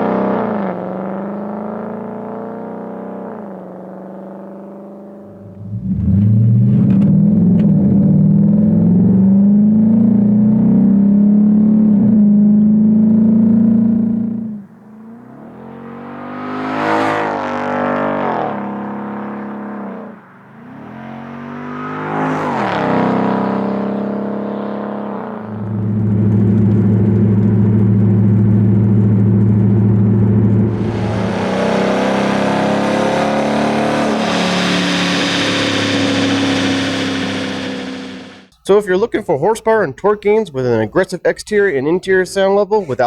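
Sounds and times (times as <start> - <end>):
car engine revving: 0.0 - 38.5
rushing noise: 29.1 - 38.5.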